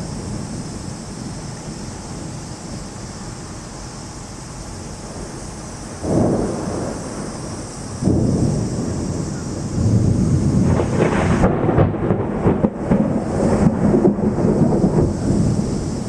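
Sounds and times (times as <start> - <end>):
heavy rain hissing: 0.0 - 16.0
low rumble of thunder: 0.0 - 16.0.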